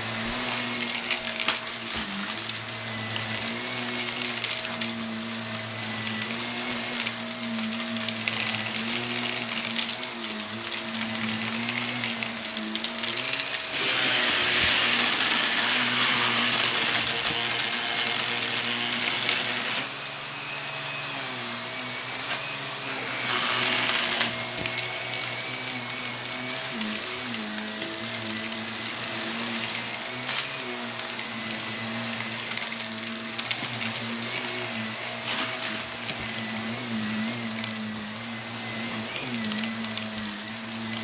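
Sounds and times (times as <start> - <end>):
debris crunching in vacuum: 0.0 - 41.0
vacuum cleaner motor hum: 0.0 - 41.0.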